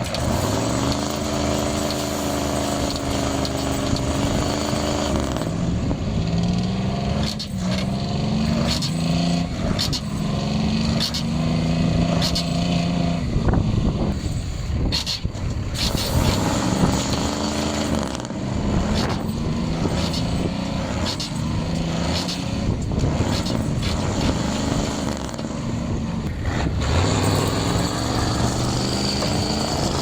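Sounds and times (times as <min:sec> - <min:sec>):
truck engine revving: 0:00.0 - 0:30.0
sharp clunks: 0:14.8 - 0:17.3.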